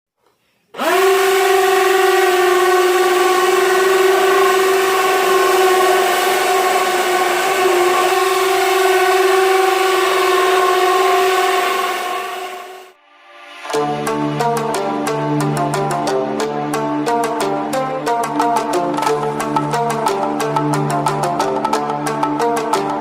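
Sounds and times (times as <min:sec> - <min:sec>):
motor spinning fan whine: 0:00.8 - 0:12.9.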